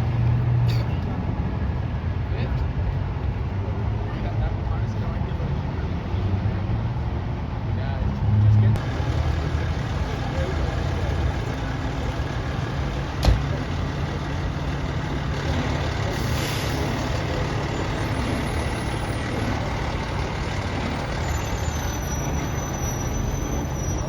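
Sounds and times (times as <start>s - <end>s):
diesel truck engine idling: 8.8s - 24.0s.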